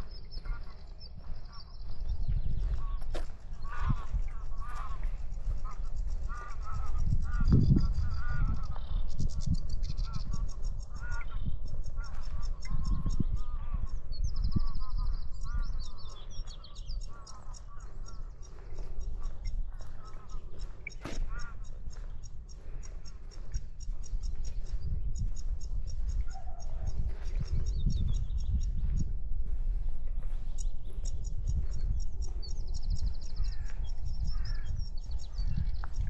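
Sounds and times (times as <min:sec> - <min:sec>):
waterfowl honking: 0:00.0 - 0:00.8, 0:02.8 - 0:09.0, 0:09.9 - 0:13.8, 0:14.7 - 0:24.3
small birds chirping: 0:00.0 - 0:36.0
wind rumble on microphone: 0:00.0 - 0:36.0.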